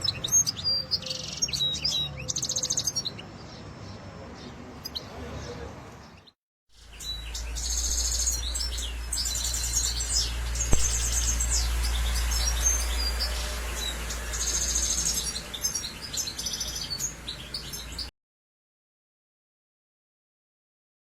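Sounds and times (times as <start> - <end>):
bird twittering trills: 0.0 - 18.1
low hum: 7.1 - 15.7
sharp click: 10.7 - 11.4.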